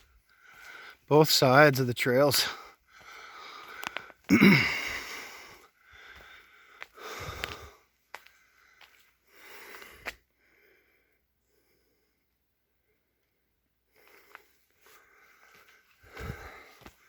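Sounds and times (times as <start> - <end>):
person breathing hard: 0.3 - 1.1, 2.4 - 12.3, 13.9 - 17.0.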